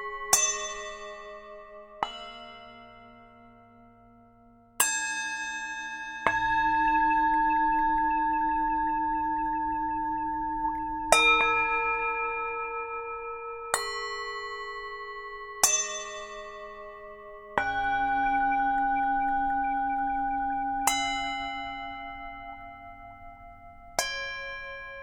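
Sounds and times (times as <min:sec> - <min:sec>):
singing bowls ringing: 0:06.2 - 0:25.0.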